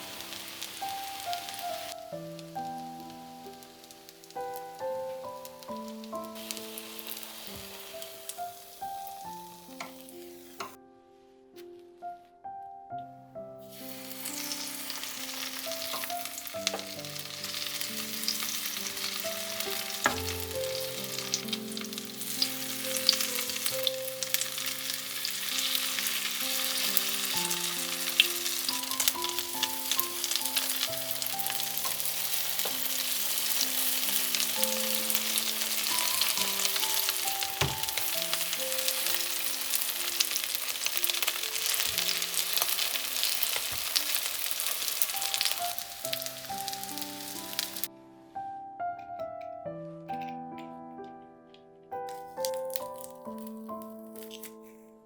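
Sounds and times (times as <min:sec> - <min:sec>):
food sizzling in hot oil: 0:00.0 - 0:10.8, 0:13.7 - 0:47.9, 0:52.1 - 0:54.4
soft background music: 0:00.0 - 0:55.0.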